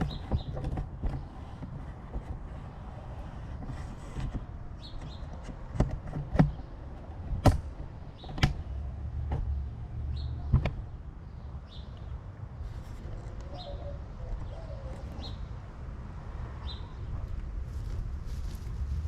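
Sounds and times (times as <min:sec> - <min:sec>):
sharp knocks and clunks: 0:00.0 - 0:02.7, 0:03.4 - 0:09.7, 0:10.4 - 0:11.0.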